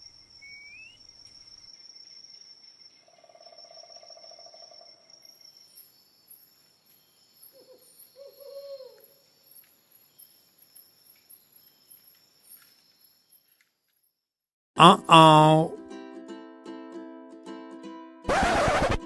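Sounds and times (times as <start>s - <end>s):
insects chirring: 0.0s - 13.7s.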